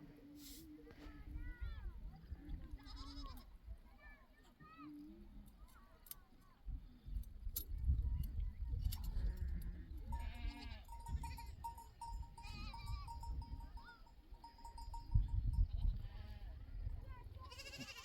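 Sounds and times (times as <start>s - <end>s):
sheep and goats bleating: 2.7s - 3.5s, 9.2s - 13.4s, 15.6s - 16.7s, 17.3s - 18.0s
wind rumble on microphone: 6.7s - 13.8s, 14.7s - 17.9s.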